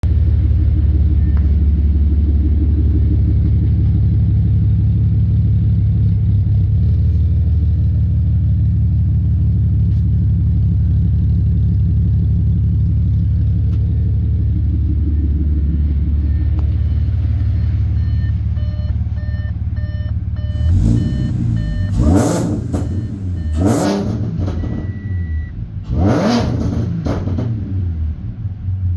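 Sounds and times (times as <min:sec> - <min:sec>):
car engine idling and revving: 0:00.0 - 0:28.9
repeating electronic beep: 0:15.0 - 0:25.5.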